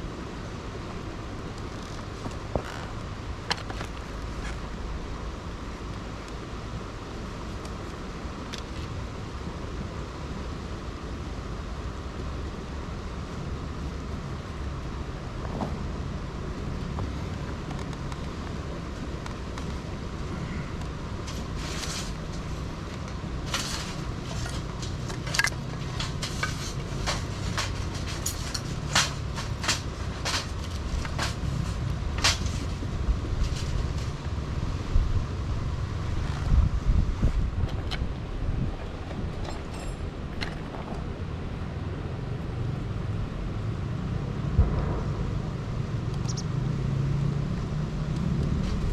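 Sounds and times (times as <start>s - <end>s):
low rushing noise: 4.2s - 48.9s
sharp clicks and snaps: 46.1s - 46.5s.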